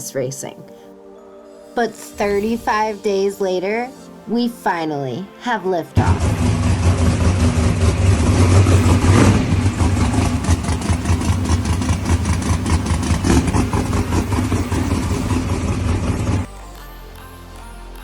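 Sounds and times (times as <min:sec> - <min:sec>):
car engine lumpy idle: 0:06.0 - 0:16.5
engine throttle blips: 0:06.0 - 0:16.5.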